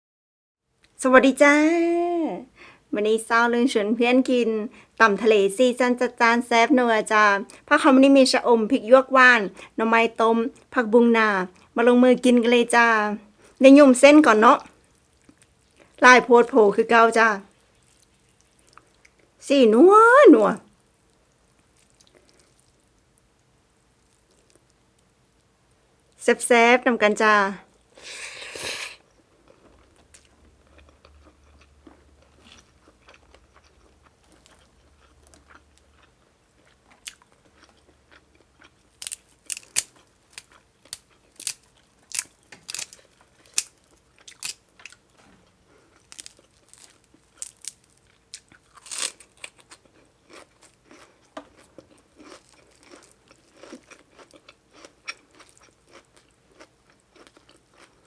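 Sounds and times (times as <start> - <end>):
person chewing with crisp crunches: 14.6 - 16.0, 17.5 - 19.4, 20.7 - 25.5, 27.7 - 58.0.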